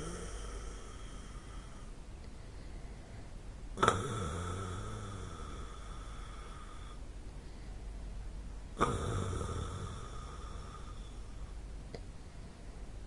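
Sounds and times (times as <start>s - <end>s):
person snoring: 0.0s - 1.9s, 3.8s - 7.0s, 8.8s - 11.4s.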